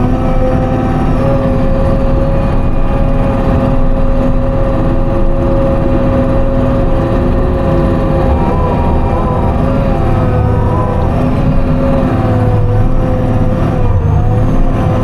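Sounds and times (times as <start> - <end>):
machine engine and hydraulics: 0.0 - 15.0
steady whine: 0.0 - 15.0
wavering high tones: 7.2 - 13.4.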